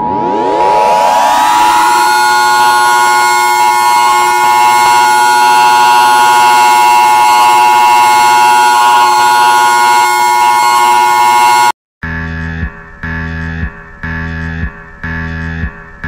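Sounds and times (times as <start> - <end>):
electronic alarm chord: 0.0 - 11.7.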